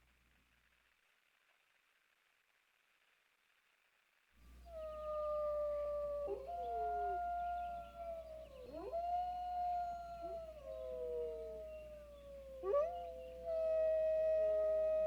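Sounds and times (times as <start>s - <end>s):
coyotes howling: 4.6s - 15.0s.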